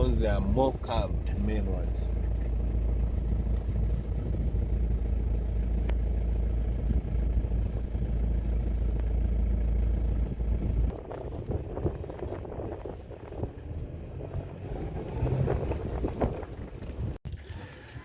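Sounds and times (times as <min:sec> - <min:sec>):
road noise: 0:00.0 - 0:18.0
vehicle engine rumble: 0:00.0 - 0:18.0.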